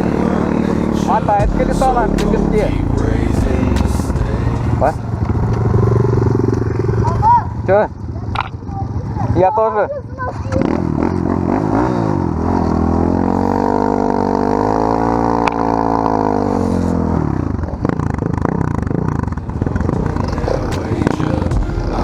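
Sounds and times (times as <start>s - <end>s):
small engine revving: 9.1s - 22.0s.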